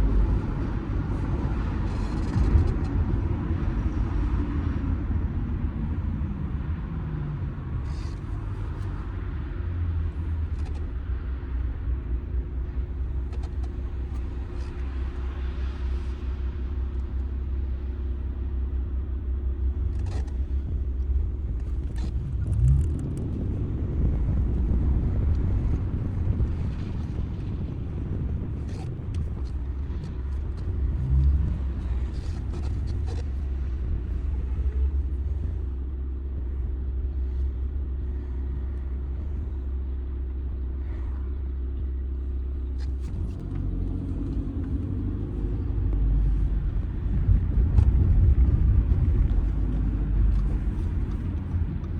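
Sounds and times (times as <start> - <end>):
car engine rumbling: 0.0 - 51.9
road noise: 0.0 - 51.9.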